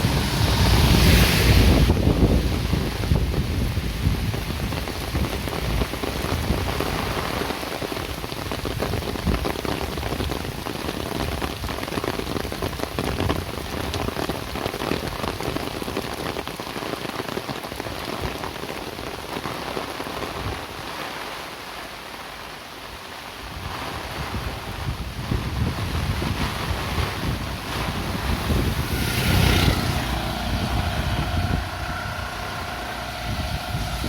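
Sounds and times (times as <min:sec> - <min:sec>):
low rumble: 0:00.0 - 0:04.1, 0:27.2 - 0:34.0
rain falling: 0:00.0 - 0:34.0.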